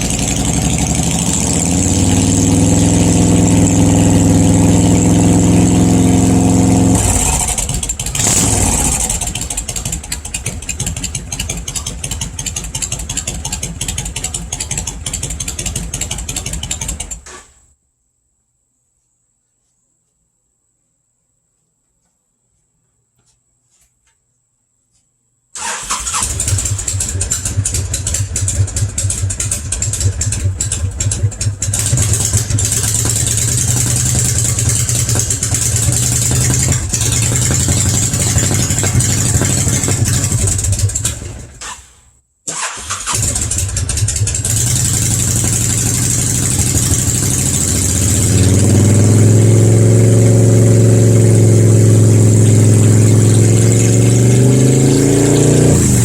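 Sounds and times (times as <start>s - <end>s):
motorcycle engine idling loudly: 0.0s - 17.2s, 26.2s - 41.5s, 43.1s - 54.3s.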